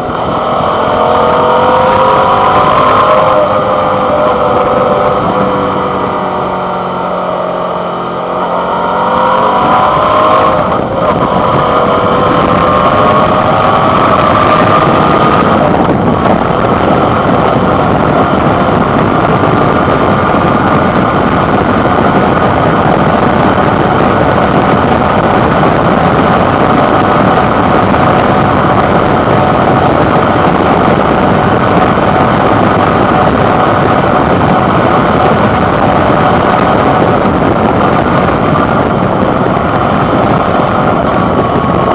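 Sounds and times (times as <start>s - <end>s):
motorcycle engine accelerating: 0.0s - 41.9s
wind and road noise: 0.0s - 41.9s.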